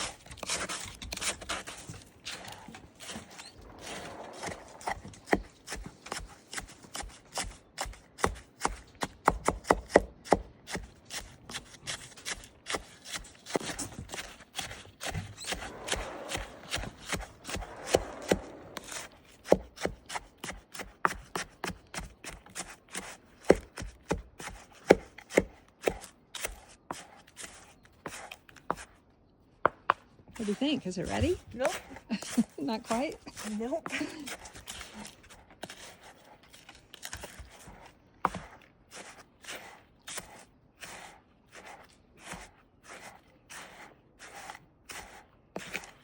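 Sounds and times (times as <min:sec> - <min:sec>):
scraping and crunching: 0:00.0 - 0:06.0, 0:12.2 - 0:19.5.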